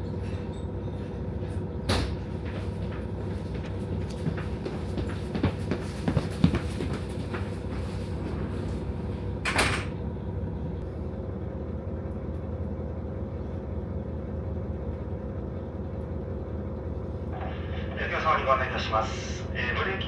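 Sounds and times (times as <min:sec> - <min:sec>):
diesel railcar idling: 0:00.0 - 0:20.0.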